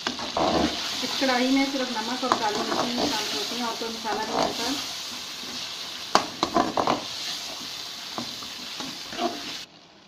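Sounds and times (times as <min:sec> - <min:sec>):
chicken sizzling in oil: 0:00.0 - 0:10.0.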